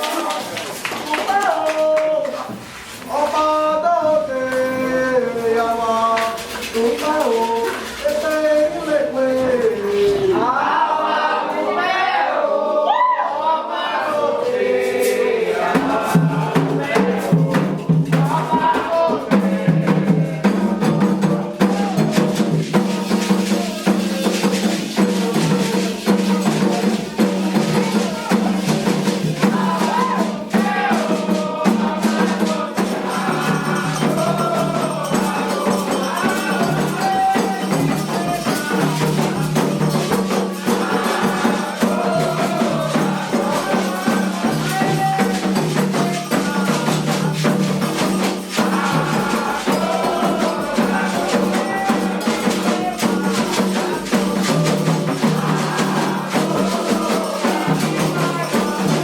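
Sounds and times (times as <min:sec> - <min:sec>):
shaken rattles: 0:00.0 - 0:10.6, 0:14.1 - 0:59.0
people singing: 0:00.0 - 0:59.0
drums: 0:14.4 - 0:59.0.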